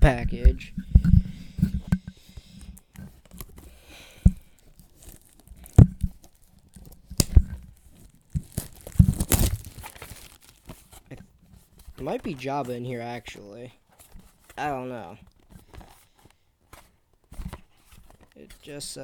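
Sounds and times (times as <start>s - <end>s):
packaging crinkling: 2.7s - 11.2s
packaging tearing: 4.3s - 11.0s.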